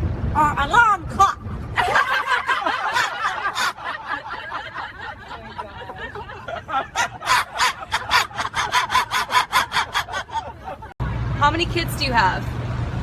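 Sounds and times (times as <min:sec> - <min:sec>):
person laughing: 0:01.8 - 0:10.9.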